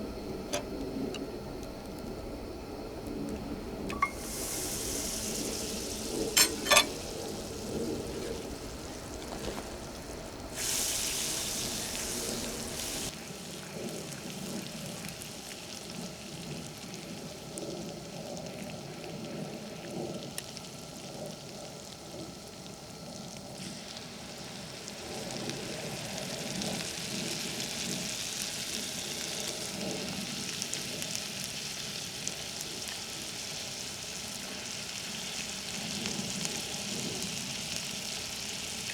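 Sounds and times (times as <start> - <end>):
food sizzling in a pan: 3.9 - 17.4, 23.6 - 38.9.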